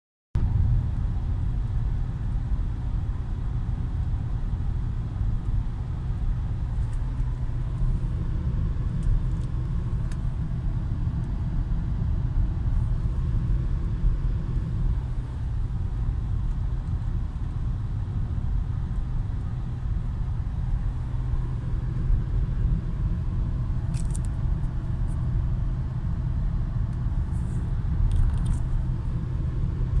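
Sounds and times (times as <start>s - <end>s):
car engine and road drone: 0.4s - 30.0s.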